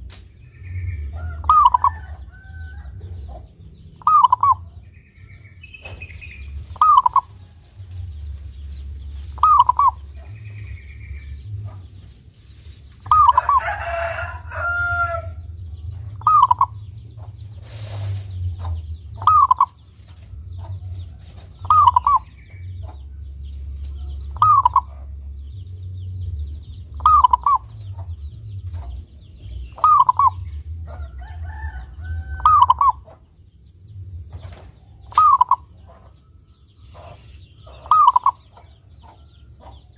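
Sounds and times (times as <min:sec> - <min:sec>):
loud bird call: 0:00.4 - 0:02.9, 0:04.0 - 0:07.4, 0:09.4 - 0:11.8, 0:13.0 - 0:15.5, 0:16.2 - 0:17.0, 0:19.1 - 0:19.9, 0:21.6 - 0:23.0, 0:24.2 - 0:25.2, 0:26.9 - 0:28.0, 0:29.6 - 0:33.2, 0:35.0 - 0:36.1, 0:36.8 - 0:39.7
dove cooing: 0:00.7 - 0:04.9, 0:05.8 - 0:07.6, 0:09.3 - 0:11.9, 0:13.0 - 0:15.4, 0:16.1 - 0:16.8, 0:17.7 - 0:19.8, 0:20.6 - 0:22.6, 0:24.0 - 0:25.3, 0:26.9 - 0:29.0, 0:29.7 - 0:33.1, 0:35.0 - 0:36.2, 0:36.9 - 0:38.7
low rumble: 0:02.9 - 0:13.6, 0:14.2 - 0:36.7.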